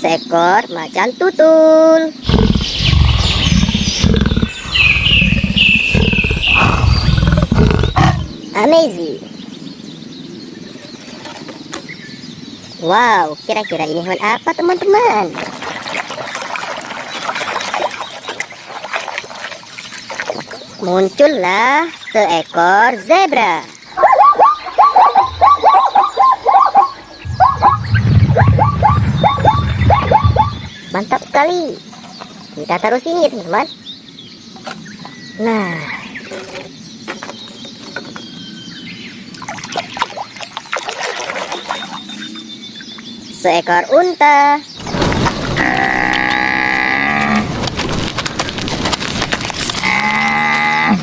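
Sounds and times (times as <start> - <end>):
big cat roaring and growling: 2.2 - 8.4, 45.4 - 47.7
zebra yelping barks: 24.0 - 27.8
low rumble: 27.0 - 30.9.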